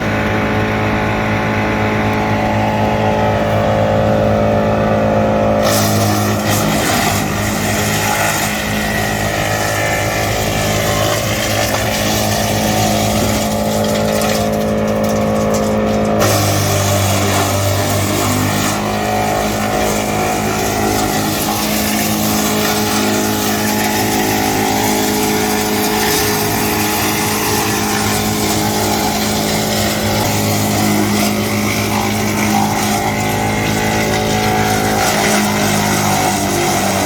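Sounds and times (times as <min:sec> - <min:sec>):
woodchipper humming: 0:00.0 - 0:37.0
wood being chipped: 0:05.6 - 0:37.0.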